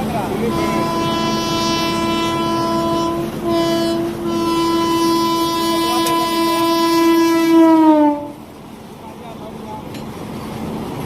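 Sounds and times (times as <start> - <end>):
train horn long blast: 0.4 - 8.5.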